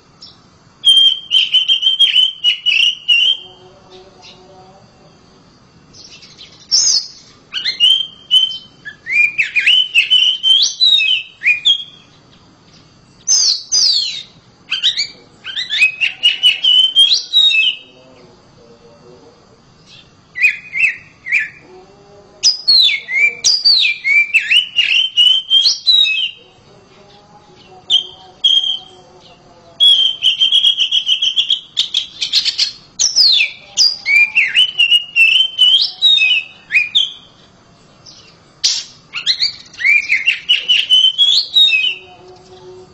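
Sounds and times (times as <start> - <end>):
bird singing whistled phrases: 0.2 - 3.6, 6.0 - 12.1, 13.2 - 18.0, 19.9 - 21.6, 22.4 - 26.4, 27.6 - 29.0, 29.8 - 37.3, 38.0 - 42.1.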